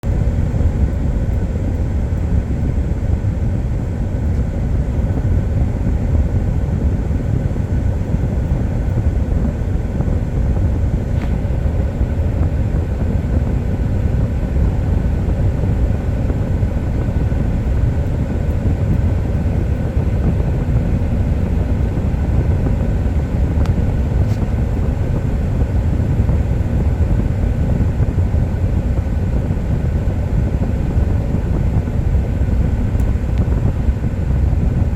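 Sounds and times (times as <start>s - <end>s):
truck engine running: 0.0s - 34.9s.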